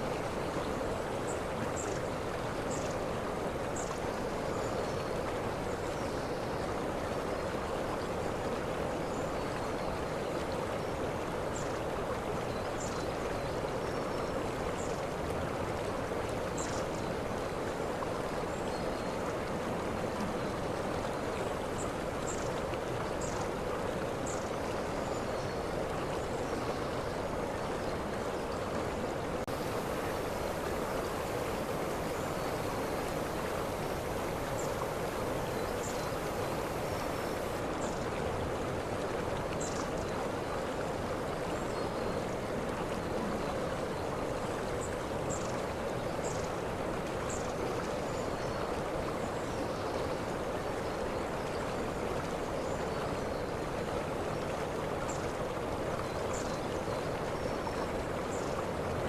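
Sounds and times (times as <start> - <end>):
waterfall rushing: 29.5 - 37.6.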